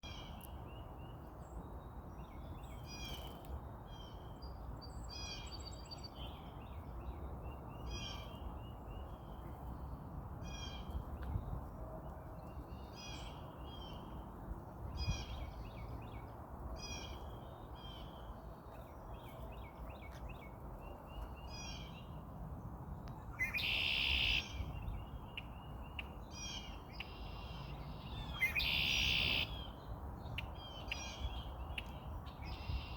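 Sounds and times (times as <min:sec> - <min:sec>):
blackbird chirping: 0:23.3 - 0:32.9
harsh bird song: 0:23.3 - 0:32.9.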